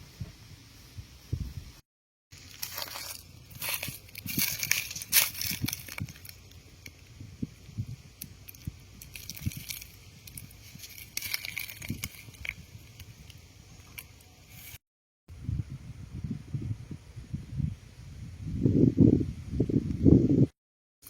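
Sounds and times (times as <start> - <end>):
rustling and crackling: 2.3 - 7.1, 8.2 - 14.8.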